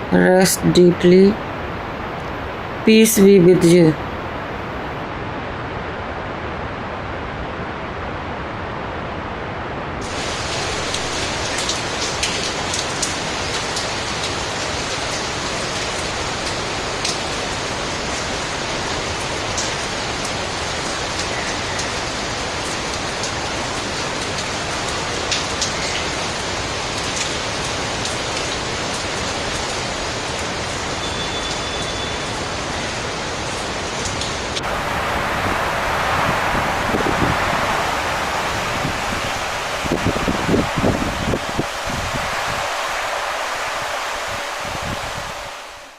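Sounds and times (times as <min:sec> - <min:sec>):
heavy rain hissing: 0:10.0 - 0:45.9
wind-like rushing: 0:34.6 - 0:45.9.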